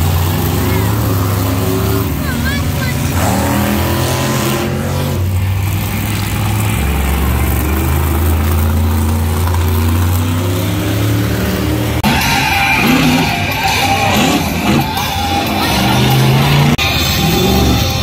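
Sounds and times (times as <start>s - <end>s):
monster truck engine droning: 0.0s - 18.0s.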